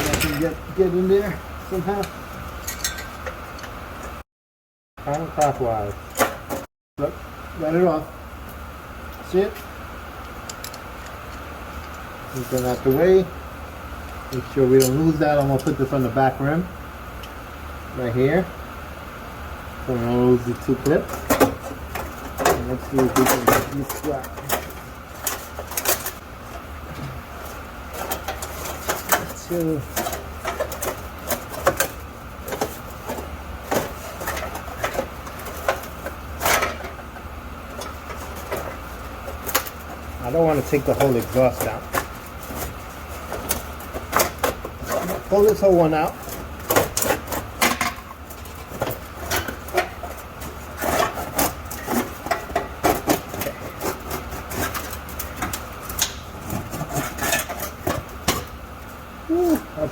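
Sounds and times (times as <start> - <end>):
steady low hum: 0.0 - 4.2, 5.0 - 59.9
scraping metal rattle: 37.7 - 58.6.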